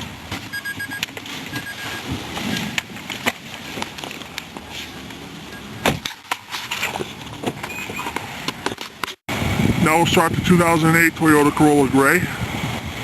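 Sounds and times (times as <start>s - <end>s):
car warning chime beeps: 0.5s - 2.8s, 5.5s - 6.0s.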